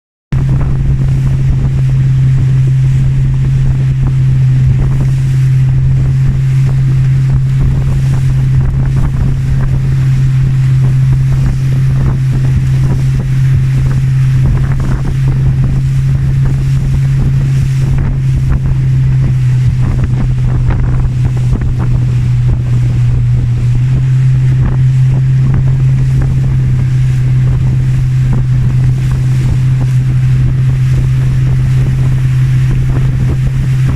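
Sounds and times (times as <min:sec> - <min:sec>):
boat engine droning: 0:00.3 - 0:33.9
water rushing past hull: 0:00.3 - 0:33.9
wind buffeting microphone: 0:00.3 - 0:33.9.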